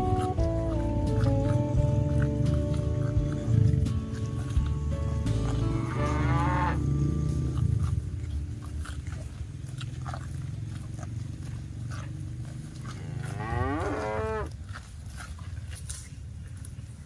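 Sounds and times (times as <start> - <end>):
cattle mooing: 0.0 - 8.7, 10.6 - 14.5.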